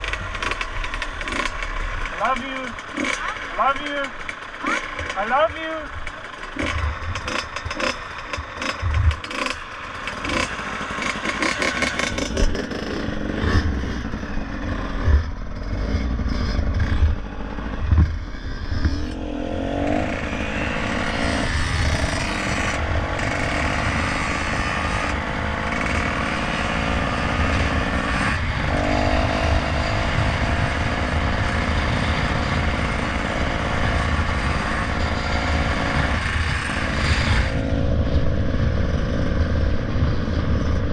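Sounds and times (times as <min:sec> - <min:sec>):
knocks and clatter: 0:00.0 - 0:05.3, 0:06.0 - 0:12.9, 0:17.8 - 0:18.2
motorcycle engine accelerating: 0:00.0 - 0:40.9.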